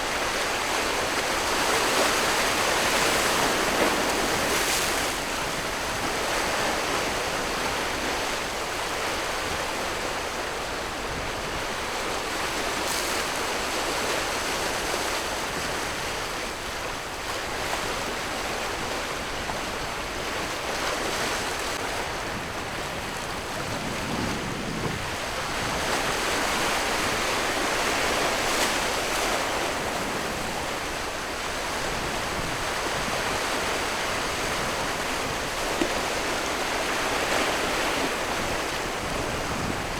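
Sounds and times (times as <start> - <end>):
wind on microphone: 19.2 - 39.9.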